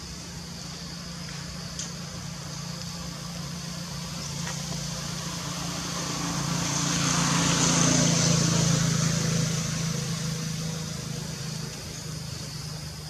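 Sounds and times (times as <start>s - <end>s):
vehicle engine passing: 3.1s - 13.0s.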